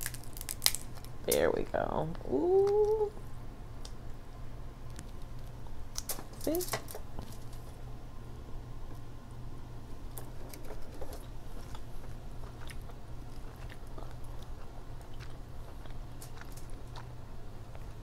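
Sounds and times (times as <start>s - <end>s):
crab shell clicking and crackling: 0.0s - 1.5s, 4.9s - 7.3s
steady low hum: 0.0s - 18.0s
chewing and wet mouth sounds: 10.2s - 18.0s.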